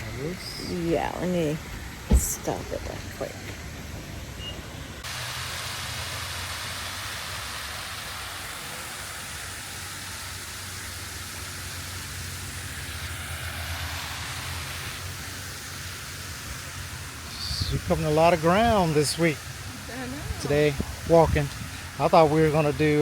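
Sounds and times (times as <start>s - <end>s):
rushing hiss: 5.0s - 23.0s.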